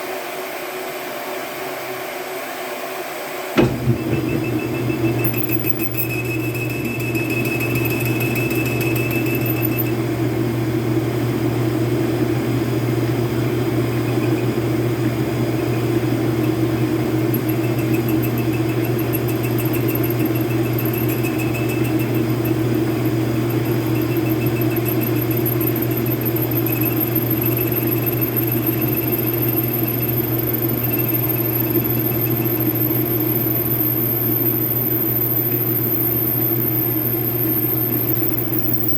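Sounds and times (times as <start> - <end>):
high-pitched squeal: 3.6 - 10.0, 17.2 - 38.9
metal lathe machining: 3.6 - 38.9.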